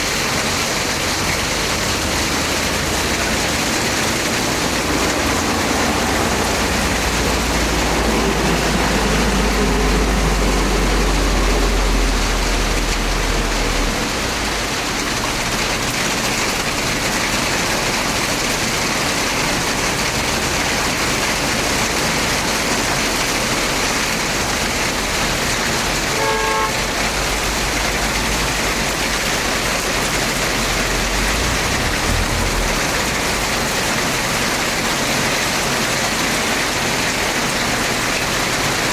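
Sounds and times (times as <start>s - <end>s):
heavy rain pouring: 0.0s - 38.9s
car horn toot: 26.1s - 27.5s
low rumble: 30.6s - 34.2s.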